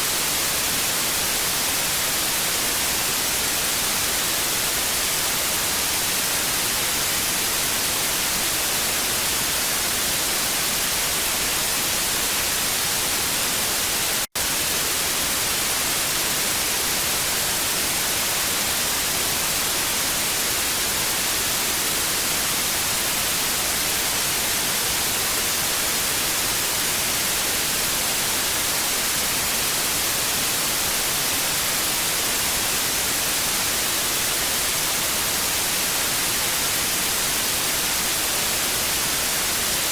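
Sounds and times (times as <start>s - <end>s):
tv static hiss: 0.0s - 39.9s.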